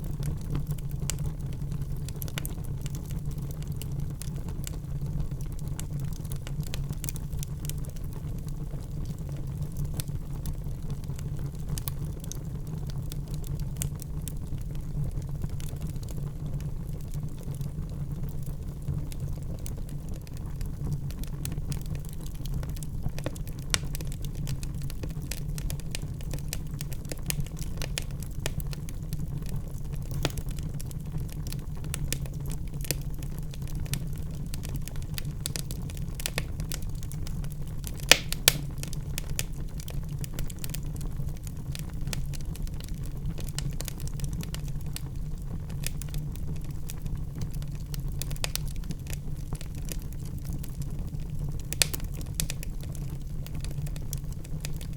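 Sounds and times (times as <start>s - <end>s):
wood fire crackling: 0.0s - 54.9s
fire pops: 21.4s - 29.1s, 29.8s - 41.1s, 45.7s - 50.8s, 51.6s - 54.9s.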